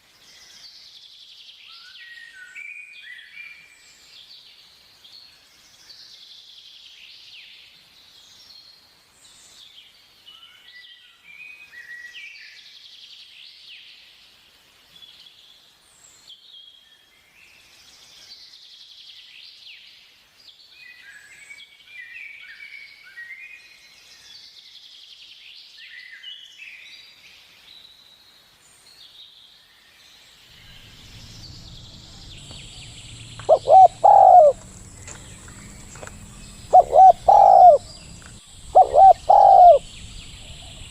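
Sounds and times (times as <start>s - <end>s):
low hum: 30.5s - 40.9s
small birds chirping: 30.5s - 40.9s
dove cooing: 30.6s - 40.9s.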